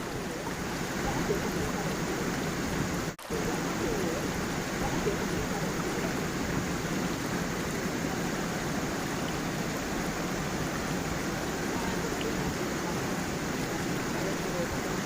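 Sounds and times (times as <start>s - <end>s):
stream and waterfall rushing: 0.0s - 15.0s.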